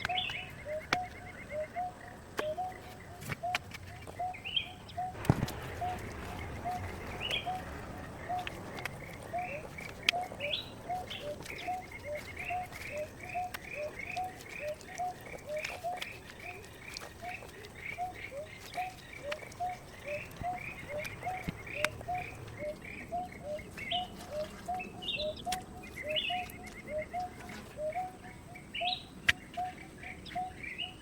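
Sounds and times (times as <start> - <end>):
bird repeating low note: 4.2 - 16.0
bird chirping higher note: 5.0 - 11.8.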